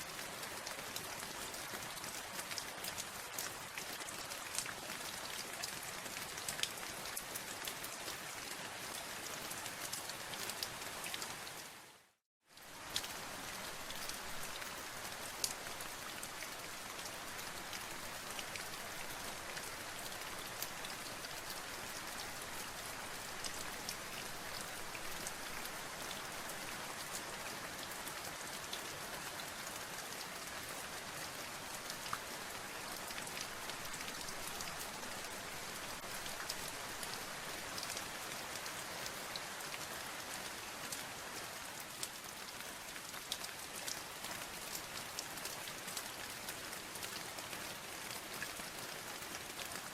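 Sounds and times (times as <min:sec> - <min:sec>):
rain drops ticking on surface: 0:00.0 - 0:49.9.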